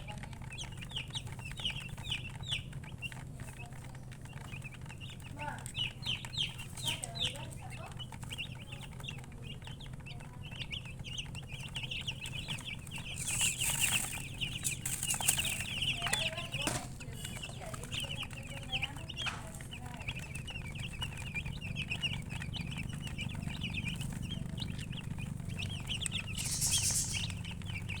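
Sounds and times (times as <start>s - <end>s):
baby chicks peeping: 0.0s - 28.0s
steady low hum: 0.0s - 28.0s
rustling hisses: 26.3s - 27.4s.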